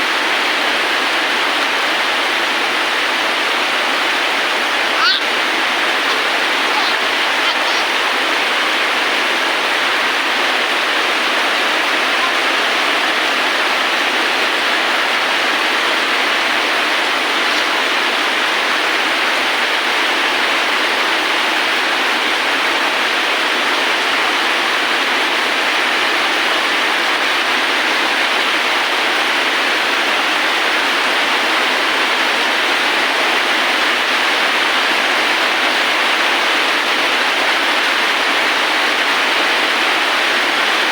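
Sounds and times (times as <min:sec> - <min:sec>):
steady dense rain: 0:00.0 - 0:40.9.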